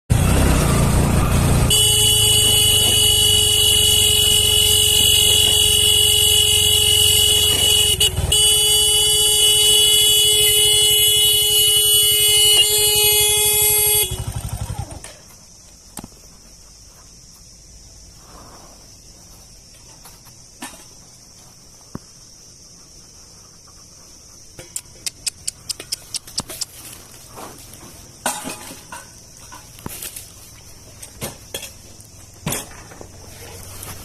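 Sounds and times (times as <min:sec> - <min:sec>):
loud horn-like blare: 0:01.2 - 0:14.7
faint cricket chirring: 0:01.7 - 0:34.0.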